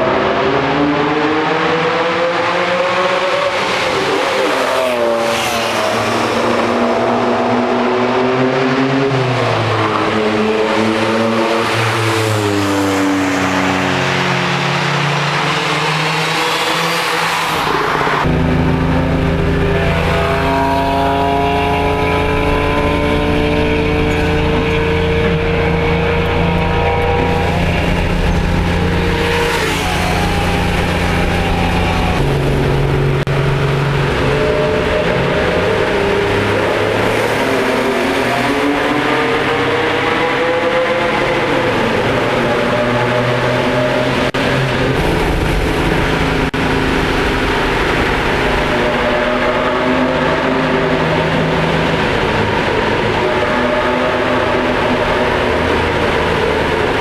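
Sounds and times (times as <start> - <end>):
car engine accelerating hard: 0.0 - 57.0.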